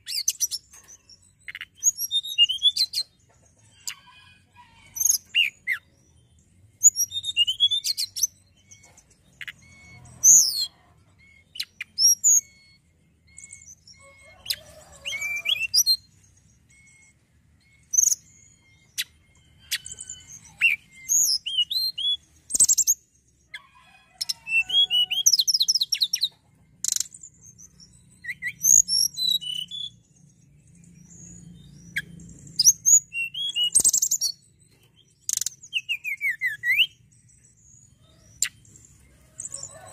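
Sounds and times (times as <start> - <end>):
songbird chirping and trilling: 0.0 - 39.9.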